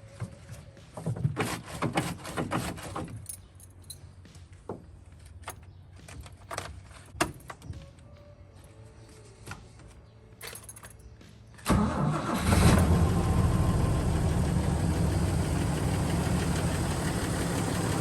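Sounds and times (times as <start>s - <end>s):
keys jangling: 3.1s - 4.1s, 10.4s - 11.2s.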